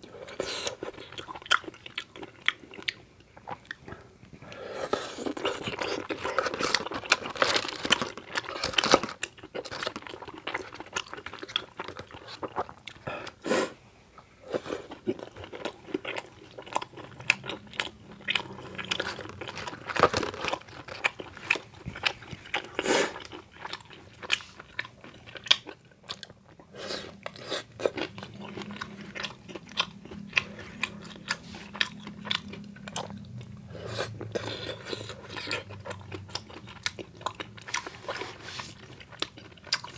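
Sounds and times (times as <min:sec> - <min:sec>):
person chewing crunchy snacks: 0:00.0 - 0:04.0, 0:04.8 - 0:13.4, 0:14.5 - 0:39.9.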